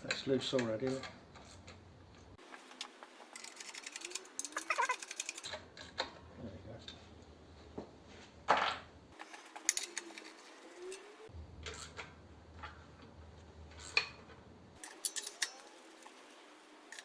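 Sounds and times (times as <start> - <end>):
metal tools clinking: 3.4 - 6.1, 9.3 - 13.0, 13.7 - 16.1.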